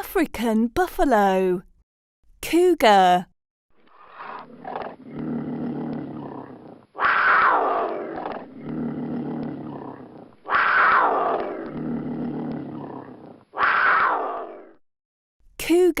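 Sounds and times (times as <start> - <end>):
low drawn-out cougar sound: 3.8 - 14.8
cougar calling: 3.9 - 14.8.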